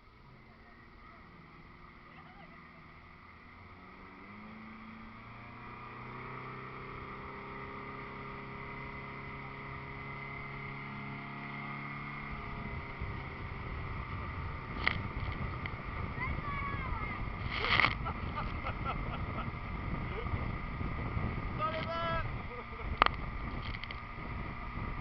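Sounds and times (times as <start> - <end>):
motorboat engine running: 0.0 - 25.0
rush of water or wind: 11.8 - 25.0.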